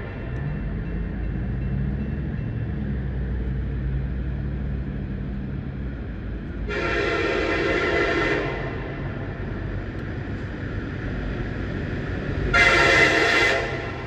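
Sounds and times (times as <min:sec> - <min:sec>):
diesel locomotive engine drone: 0:00.0 - 0:14.0
locomotive air horn blast: 0:06.7 - 0:08.9, 0:12.5 - 0:14.0.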